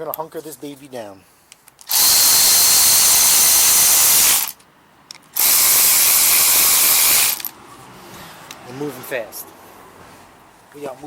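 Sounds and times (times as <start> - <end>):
power driver running: 1.9 - 4.5, 5.4 - 7.5.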